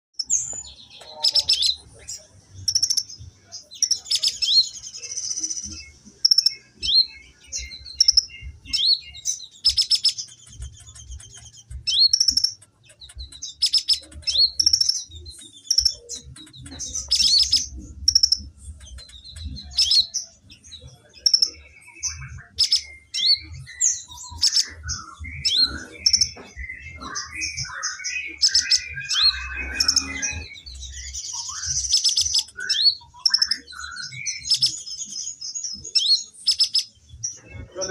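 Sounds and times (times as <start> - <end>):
songbird chirping and whistling: 0.2 - 37.9
low bird warbling: 24.3 - 34.6.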